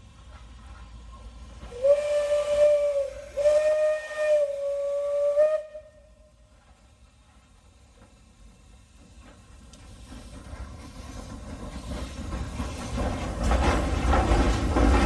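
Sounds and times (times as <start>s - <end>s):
steam locomotive whistle: 1.7s - 6.4s.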